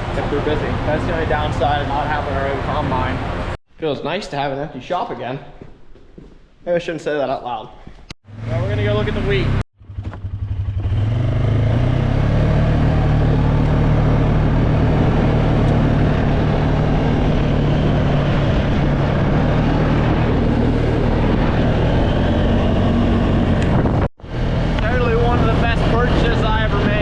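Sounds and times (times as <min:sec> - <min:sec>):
atv engine running: 0:08.3 - 0:27.0.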